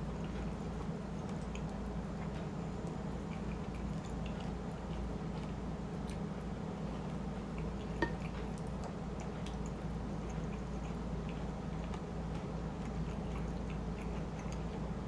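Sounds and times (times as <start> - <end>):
steady low hum: 0.0 - 15.0
wet chewing noises: 0.0 - 15.0.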